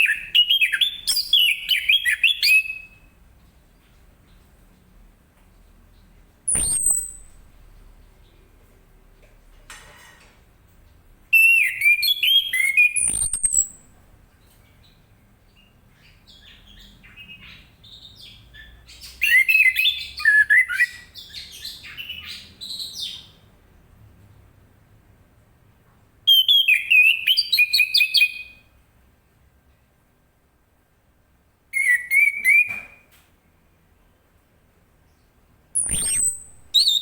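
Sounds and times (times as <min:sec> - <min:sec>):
soft bird chirps: 0:00.0 - 0:05.0, 0:05.6 - 0:08.5, 0:11.4 - 0:23.5, 0:35.0 - 0:37.0.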